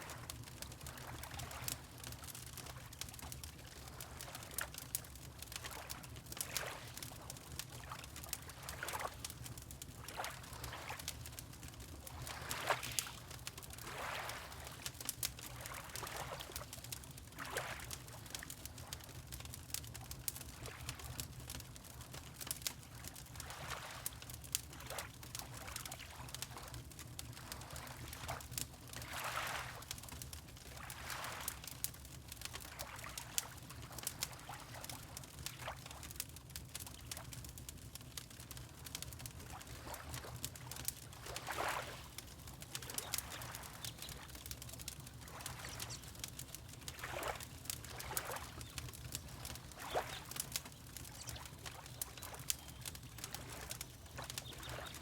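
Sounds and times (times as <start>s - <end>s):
wood fire crackling: 0.1s - 55.0s
water lapping: 0.8s - 1.8s, 10.0s - 11.0s, 12.0s - 16.6s, 17.3s - 19.0s, 23.4s - 24.1s, 27.4s - 28.4s, 29.0s - 29.9s, 30.6s - 31.7s, 39.4s - 55.0s.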